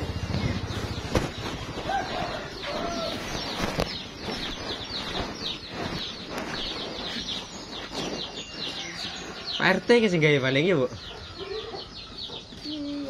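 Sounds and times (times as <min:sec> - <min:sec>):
birds chirping: 0:00.0 - 0:13.0
lower bird calls: 0:00.0 - 0:13.0.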